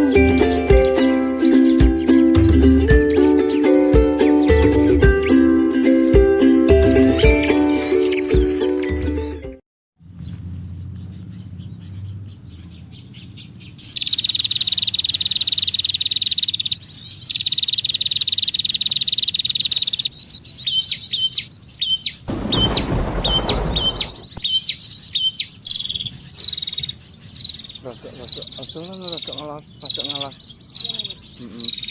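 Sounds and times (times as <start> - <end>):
bird trills: 0.0 - 5.4, 6.9 - 9.4, 10.2 - 31.9
brief rushing noise: 22.3 - 24.4.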